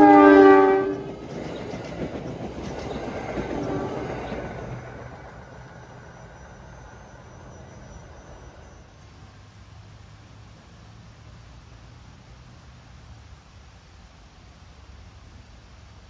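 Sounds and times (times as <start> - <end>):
train wheels running on rails: 0.0 - 8.1.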